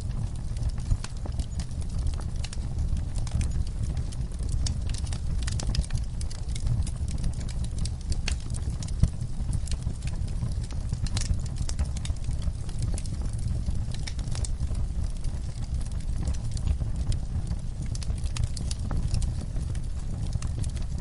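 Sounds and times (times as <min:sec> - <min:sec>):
fire crackling and popping: 0:00.0 - 0:21.0
fire rumbling: 0:00.0 - 0:21.0.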